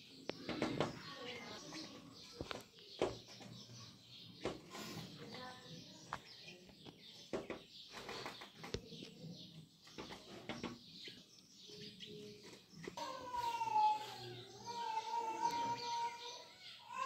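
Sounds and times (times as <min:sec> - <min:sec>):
wing flutters: 0:07.9 - 0:08.8.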